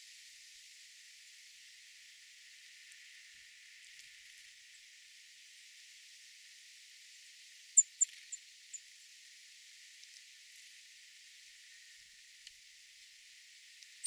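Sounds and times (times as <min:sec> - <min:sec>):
small bird chirping: 0:07.8 - 0:08.8.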